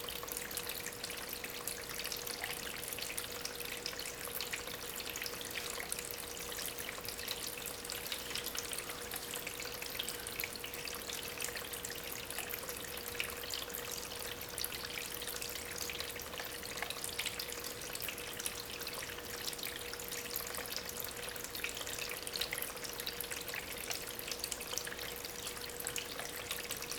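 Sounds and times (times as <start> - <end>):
faint pump hum: 0.0 - 26.9
water trickling over stones: 0.0 - 26.9.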